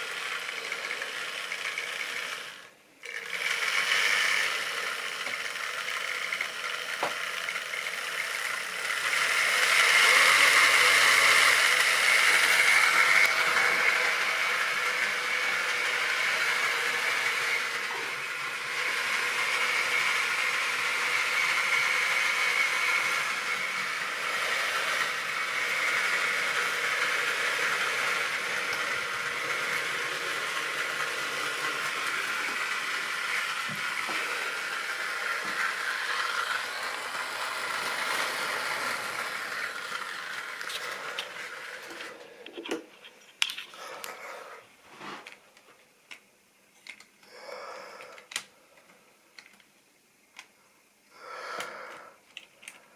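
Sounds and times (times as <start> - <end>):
electric motor hum: 0.0 - 43.0.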